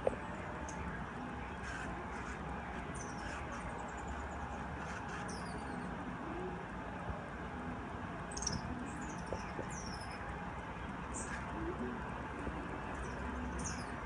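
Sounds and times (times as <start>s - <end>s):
hummingbirds squeaky calls: 1.5s - 6.0s, 8.3s - 10.3s, 12.9s - 14.0s.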